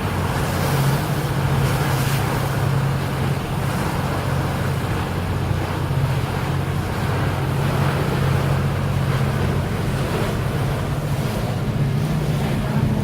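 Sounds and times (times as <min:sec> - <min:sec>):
boat engine humming: 0:00.0 - 0:13.0
rushing water: 0:00.0 - 0:13.0
wind on microphone: 0:00.0 - 0:13.0.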